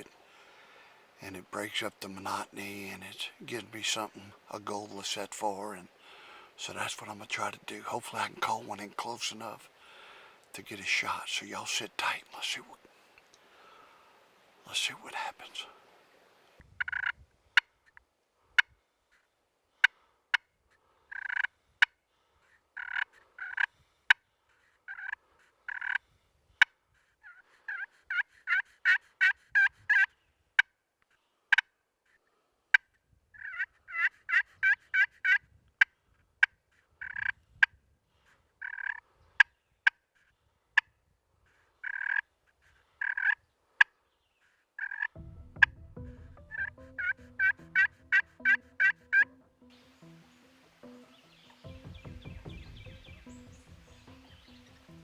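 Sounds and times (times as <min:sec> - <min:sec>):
sharp turkey clucks: 0:16.8 - 0:18.0, 0:21.1 - 0:24.2, 0:24.9 - 0:26.0, 0:26.6 - 0:30.7, 0:31.5 - 0:31.7, 0:32.7 - 0:37.4, 0:38.6 - 0:40.0, 0:41.8 - 0:42.3, 0:43.0 - 0:44.0, 0:44.8 - 0:45.8, 0:46.5 - 0:49.4
turkey call yelps: 0:27.2 - 0:30.1, 0:33.4 - 0:35.4, 0:46.5 - 0:49.4.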